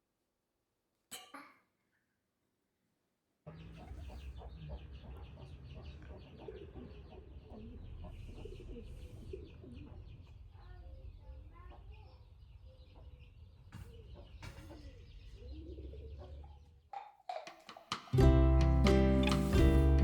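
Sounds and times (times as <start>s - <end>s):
birds chirping: 3.5s - 17.0s.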